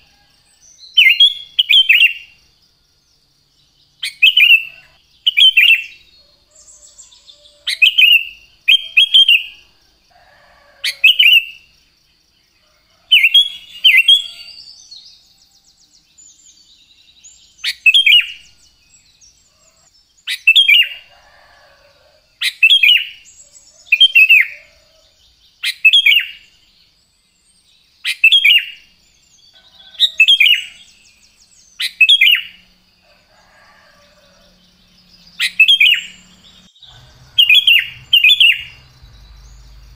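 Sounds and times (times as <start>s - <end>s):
bulbul whistled song: 37.2s - 39.5s.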